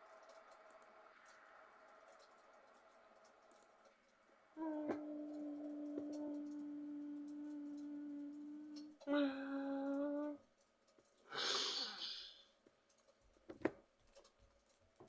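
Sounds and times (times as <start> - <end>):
click: 0.1 - 1.4, 2.1 - 4.0
short hiss: 11.3 - 12.5.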